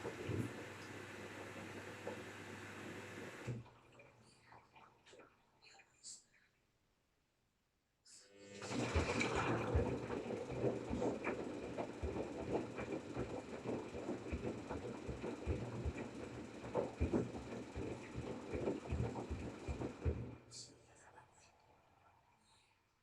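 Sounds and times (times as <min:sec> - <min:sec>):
washing machine motor hum: 0:00.0 - 0:03.8, 0:08.4 - 0:20.5.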